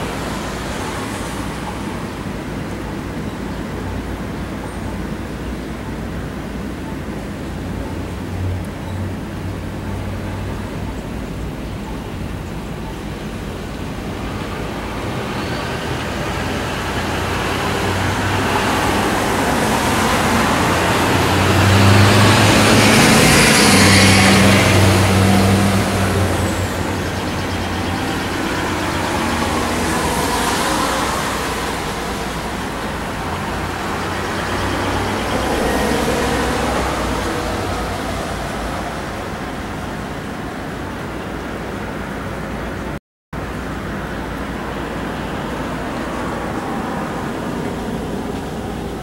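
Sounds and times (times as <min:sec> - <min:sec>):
smaller vehicles passing: 0:00.0 - 0:49.0
large vehicle passing: 0:13.2 - 0:41.3.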